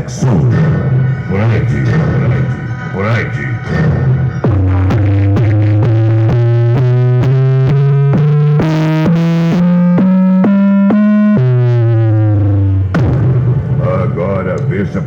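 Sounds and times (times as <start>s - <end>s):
bass-heavy synthesizer notes: 0.0s - 15.0s.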